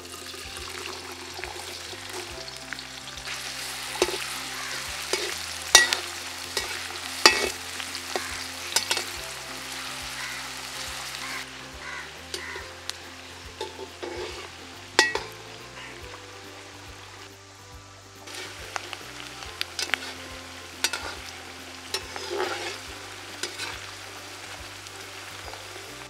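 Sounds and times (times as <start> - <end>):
onions sizzling in hot oil: 0.0 - 26.0.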